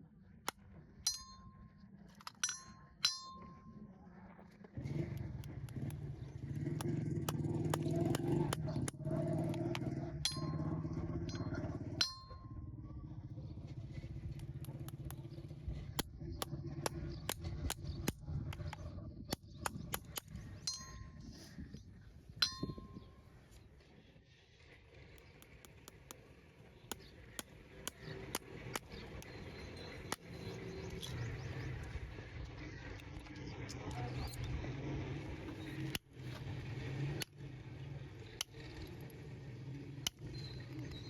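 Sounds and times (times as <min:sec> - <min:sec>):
small motor droning: 0:04.8 - 0:41.0
metallic clinks and taps: 0:06.8 - 0:12.4.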